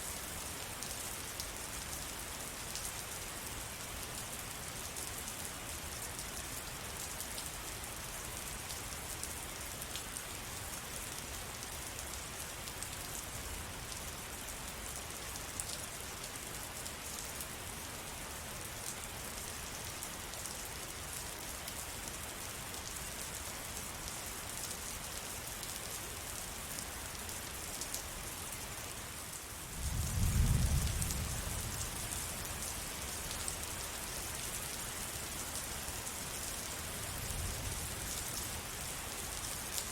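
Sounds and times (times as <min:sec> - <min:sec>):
rain pattering: 0:18.9 - 0:39.9.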